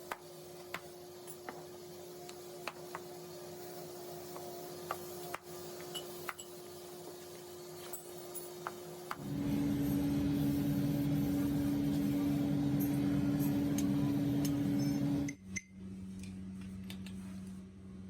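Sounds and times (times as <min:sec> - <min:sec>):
electric motor humming: 0:09.2 - 0:15.3
low hum: 0:09.2 - 0:16.1.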